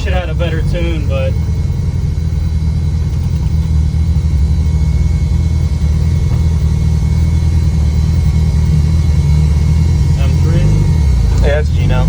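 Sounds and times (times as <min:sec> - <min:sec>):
car engine loud low drone: 0:00.0 - 0:12.0.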